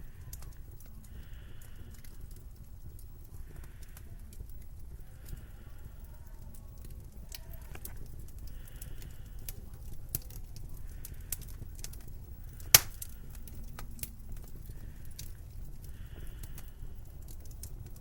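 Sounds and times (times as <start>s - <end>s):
crackling clicks: 0.0s - 18.0s
loud sharp snap: 12.8s - 13.0s.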